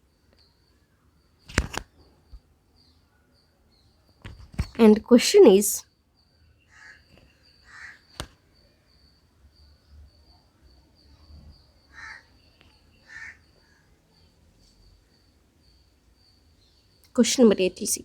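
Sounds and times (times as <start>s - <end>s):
sharp click: 1.5s - 1.9s
faint bird calls: 6.4s - 9.1s, 11.2s - 15.2s.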